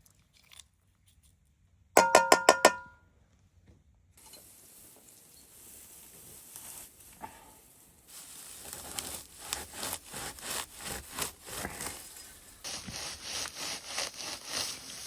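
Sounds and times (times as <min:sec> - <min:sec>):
hand saw cutting wood: 0:08.6 - 0:12.0, 0:12.7 - 0:15.0.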